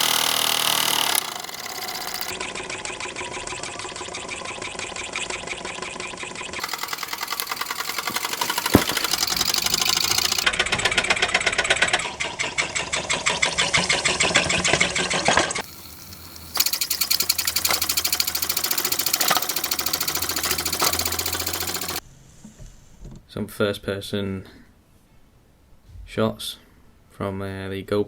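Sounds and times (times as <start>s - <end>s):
miniature steam engine running: 0.0s - 22.0s.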